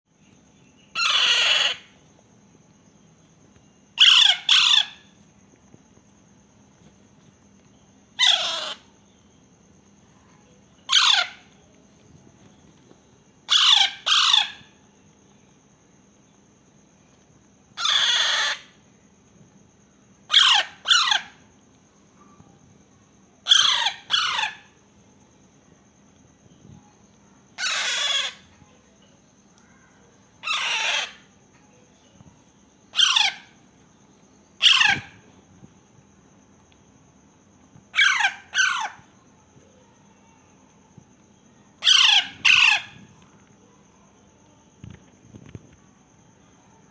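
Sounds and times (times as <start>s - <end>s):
parakeet calling: 0.8s - 2.0s, 4.0s - 5.1s, 8.2s - 8.9s, 10.8s - 11.5s, 13.5s - 14.7s, 17.8s - 18.7s, 20.3s - 21.3s, 23.4s - 24.7s, 27.6s - 28.5s, 30.4s - 31.3s, 32.9s - 33.6s, 34.6s - 35.2s, 37.9s - 39.0s, 41.8s - 43.0s.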